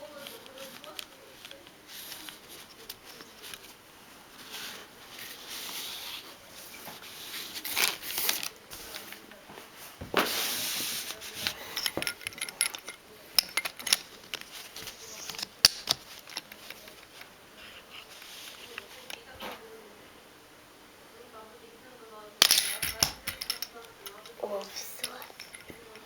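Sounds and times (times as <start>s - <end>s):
plastic toy clicks and rattles: 0.2s - 3.7s, 11.3s - 17.3s, 22.4s - 26.0s.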